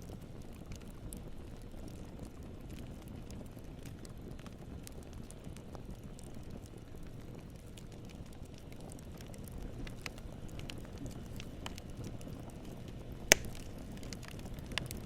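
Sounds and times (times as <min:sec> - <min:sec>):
campfire flames rumbling: 0:00.0 - 0:15.0
wood crackling: 0:00.0 - 0:15.0
loud sharp wood crack: 0:13.3 - 0:14.9.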